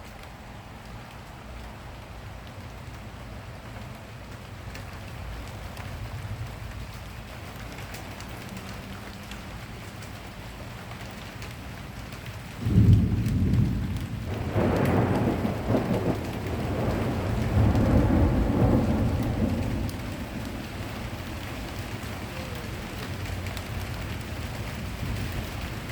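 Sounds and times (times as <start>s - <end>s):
steady rain falling: 0.0s - 25.9s
thunderclap rumbling: 12.5s - 25.9s.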